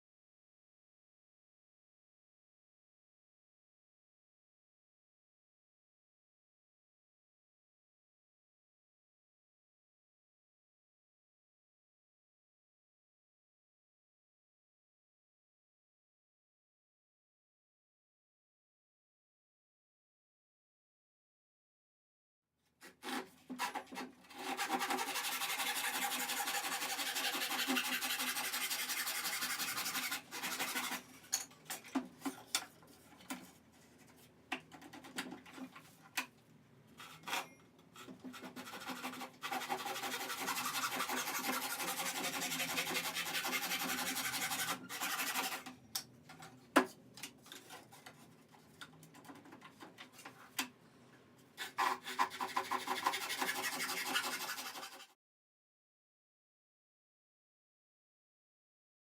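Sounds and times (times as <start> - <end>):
rubbing on a wooden board: 23.1 - 31.0, 38.2 - 45.6, 51.7 - 55.1.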